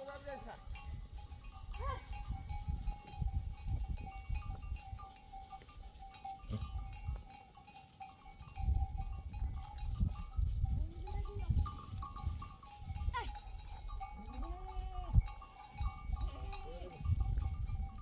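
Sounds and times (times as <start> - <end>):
animal bells jingling: 0.0 - 18.0
sheep bleating: 14.2 - 15.2.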